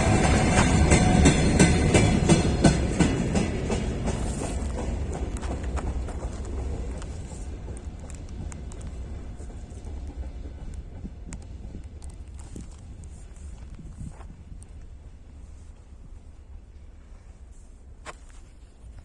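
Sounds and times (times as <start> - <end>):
freight train wheels knocking: 0.0 - 13.1.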